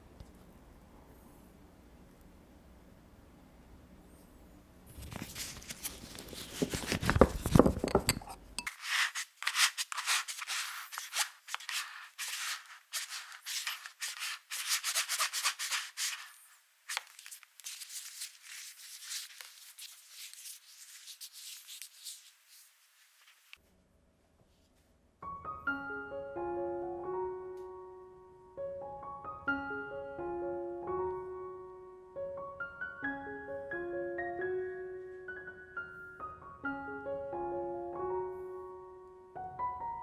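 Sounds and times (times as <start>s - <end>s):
batter stirred in a bowl: 6.2s - 22.5s.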